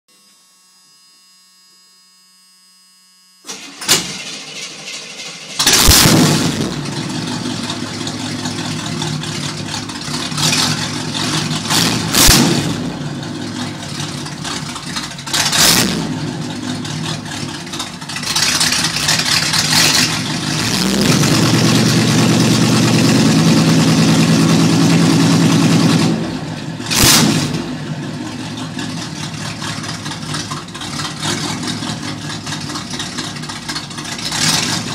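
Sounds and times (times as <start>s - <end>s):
starter motor cranking: 3.5s - 6.0s
engine burbling and revving: 5.6s - 34.9s.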